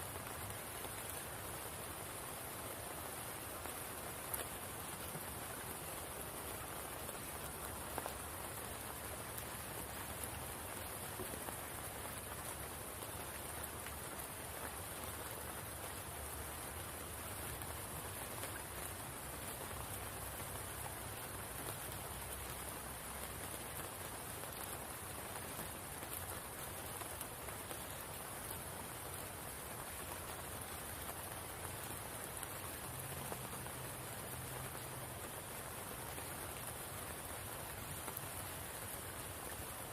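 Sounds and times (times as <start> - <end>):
patter of raindrops: 0.0 - 39.9
steady rain falling: 0.0 - 39.9.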